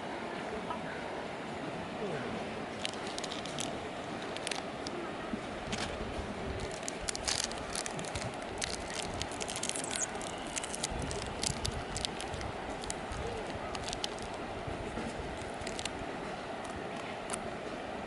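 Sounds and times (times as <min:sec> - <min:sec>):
campfire crackling and popping: 0:06.6 - 0:14.4.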